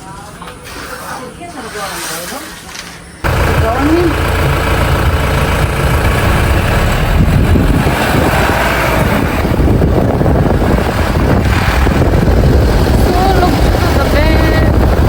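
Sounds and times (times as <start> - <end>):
moving vehicle rumble: 3.2 - 15.0.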